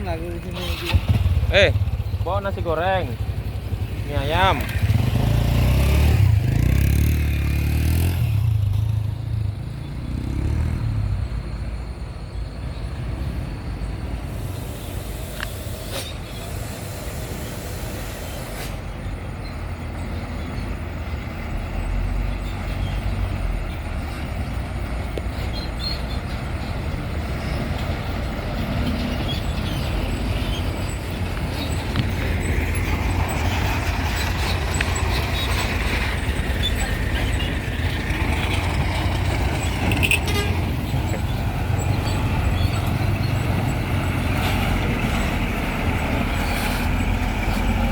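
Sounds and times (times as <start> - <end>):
diesel truck engine running: 0.0 - 9.8, 13.8 - 47.9
high hissing noise: 14.1 - 19.2.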